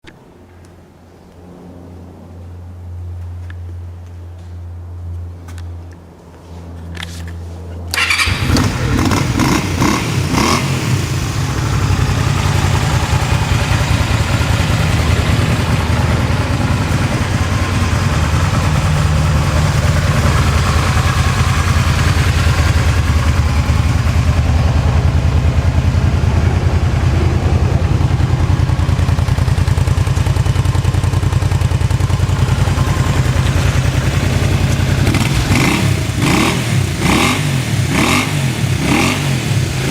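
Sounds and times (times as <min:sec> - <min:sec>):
engine starter turning over: 0:07.9 - 0:09.4
motorcycle engine idling: 0:07.9 - 0:39.9.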